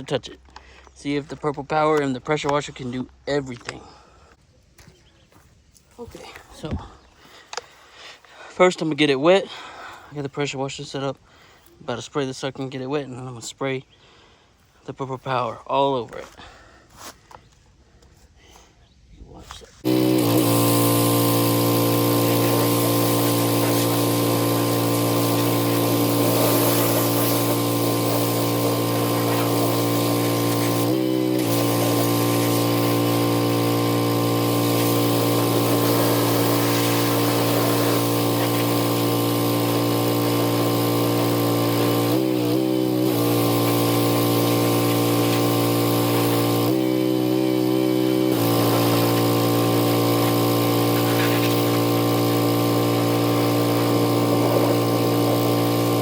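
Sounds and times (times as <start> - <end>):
pressure washer spraying: 19.8 - 56.0.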